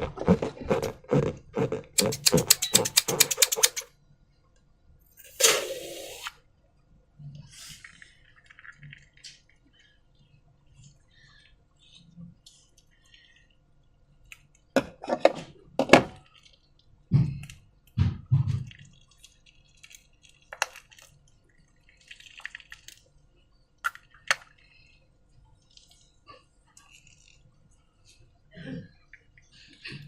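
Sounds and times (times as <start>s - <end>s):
sharp clicks: 2.0s - 3.9s.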